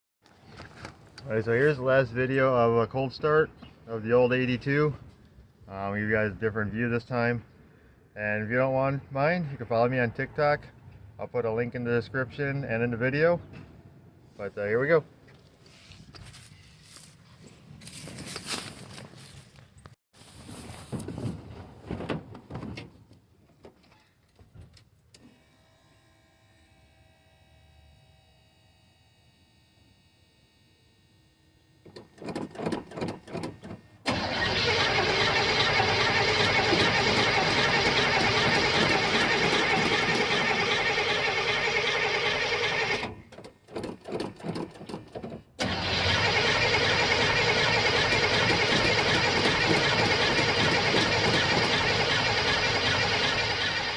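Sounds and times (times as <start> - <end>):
pickup engine cranking and starting: 31.9 - 53.9.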